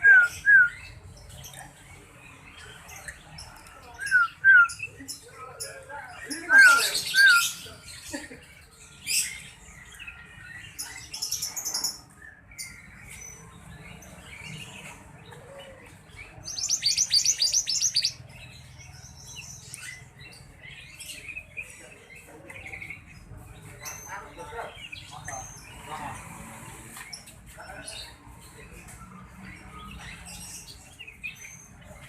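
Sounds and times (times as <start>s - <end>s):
birds chirping: 0.0s - 32.0s
fast bird trill: 16.5s - 18.2s.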